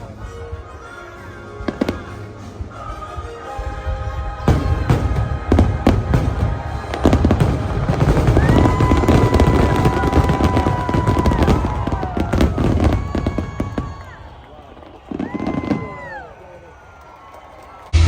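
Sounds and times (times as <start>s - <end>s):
music playing: 0.0s - 12.9s
fireworks bangs: 1.6s - 16.6s.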